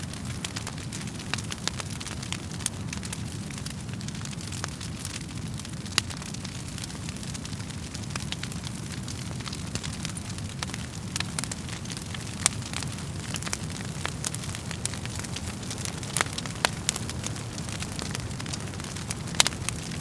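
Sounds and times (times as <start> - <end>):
burning logs crackling and popping: 0.0 - 20.0
low rumble of flames: 0.0 - 20.0.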